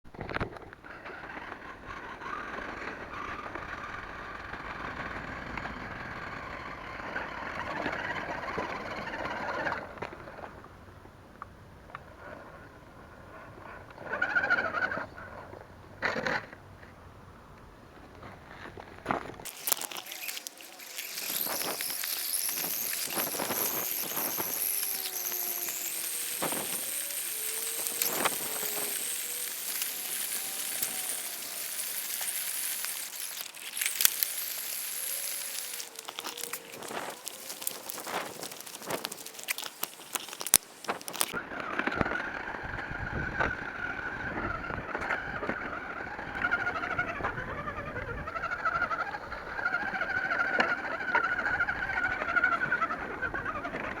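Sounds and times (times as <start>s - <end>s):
tyres crackling on stones: 18.1s - 42.1s
electric motor whining: 19.3s - 54.0s.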